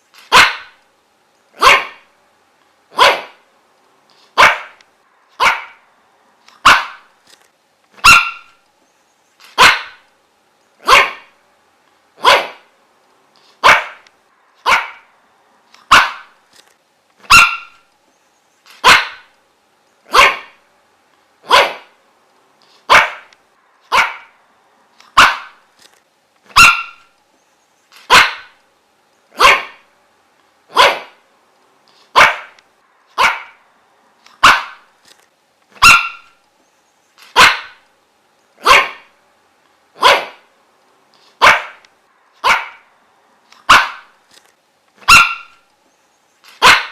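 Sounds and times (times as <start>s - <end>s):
dog barking: 0.3s - 0.8s, 1.6s - 2.1s, 2.9s - 3.4s, 4.4s - 4.8s, 5.4s - 5.8s, 6.6s - 7.1s, 8.0s - 8.6s, 9.6s - 10.0s, 10.8s - 11.4s, 12.2s - 12.7s, 13.6s - 14.0s, 14.6s - 15.1s, 15.8s - 16.4s, 17.3s - 17.8s, 18.8s - 19.3s, 20.1s - 20.6s, 21.4s - 22.0s, 22.9s - 23.3s, 23.9s - 24.4s, 25.1s - 25.6s, 26.5s - 27.1s, 28.1s - 28.6s, 29.4s - 29.9s, 30.7s - 31.2s, 32.1s - 32.6s, 33.2s - 33.6s, 34.4s - 34.9s, 35.8s - 36.4s, 37.3s - 37.8s, 38.6s - 39.1s, 40.0s - 40.5s, 41.4s - 41.8s, 42.4s - 42.9s, 43.6s - 44.1s, 45.0s - 45.6s, 46.6s - 46.9s.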